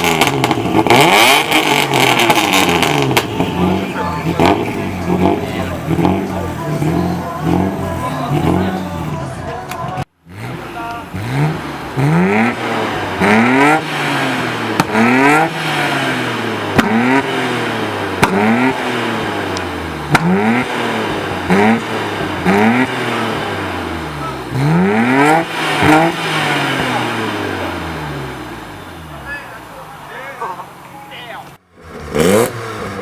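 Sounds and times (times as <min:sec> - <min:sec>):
sharp exhaust pops: 0:00.0 - 0:03.6, 0:10.8 - 0:16.0, 0:16.7 - 0:23.5
car engine revving: 0:00.0 - 0:33.0.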